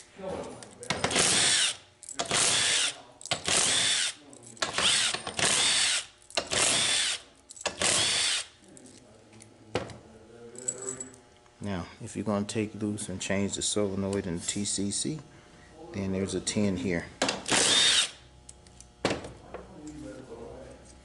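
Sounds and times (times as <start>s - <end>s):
power driver whining: 17.2s - 19.1s.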